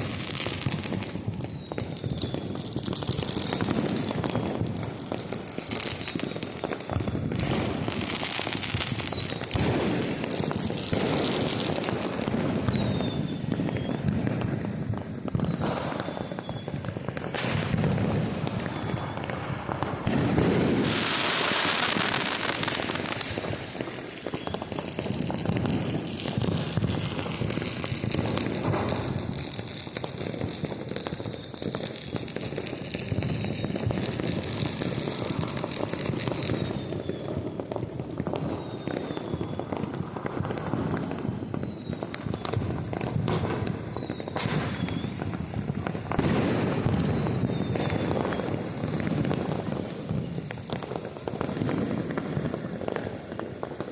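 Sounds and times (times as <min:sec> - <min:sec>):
falling firework whistles: 0:00.0 - 0:53.9
firecrackers crackling: 0:00.0 - 0:53.9
sharp firework bangs: 0:07.0 - 0:32.4, 0:38.0 - 0:52.5.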